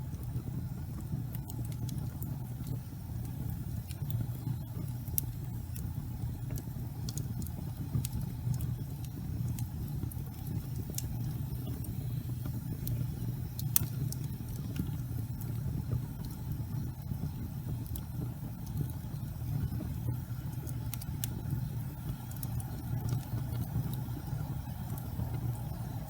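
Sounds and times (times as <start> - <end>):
fire crackles and pops: 0.0 - 26.0
low rumble of flames: 0.0 - 26.0.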